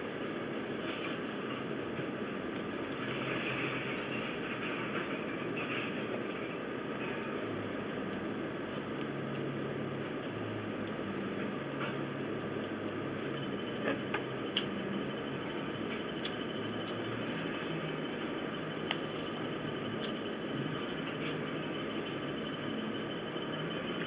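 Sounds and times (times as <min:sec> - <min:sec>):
sharp crunches and clicks: 0:16.2 - 0:17.6.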